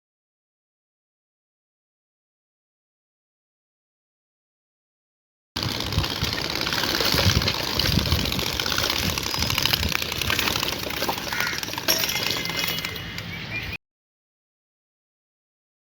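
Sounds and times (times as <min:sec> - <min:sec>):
motorcycle engine uneven rumble: 0:05.6 - 0:13.4.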